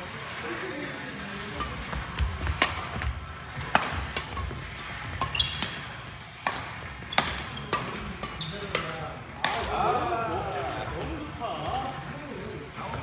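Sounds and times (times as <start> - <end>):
ball struck and bouncing: 1.6 - 9.9.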